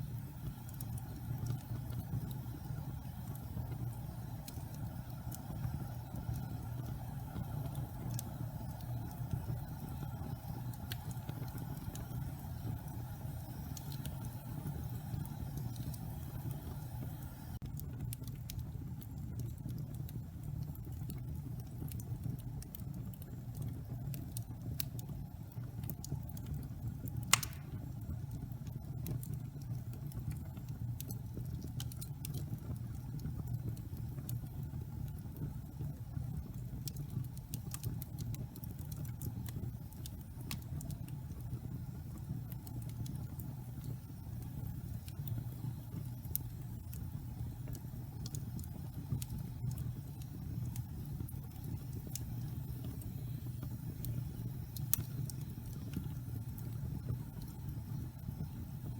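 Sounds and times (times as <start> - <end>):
log fire rumbling and crackling: 0.0 - 58.9
loud fire pop: 27.3 - 27.9.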